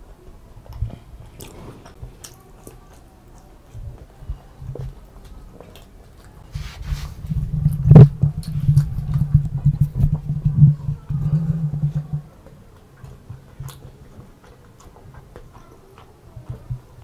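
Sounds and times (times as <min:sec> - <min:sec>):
close-miked chewing: 0:00.0 - 0:17.0
low steady hum: 0:00.0 - 0:17.0.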